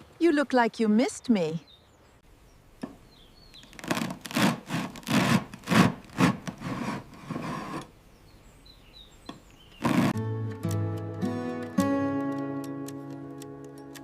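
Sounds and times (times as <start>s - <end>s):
rubbing or scraping strokes: 3.8s - 7.9s, 9.8s - 10.2s.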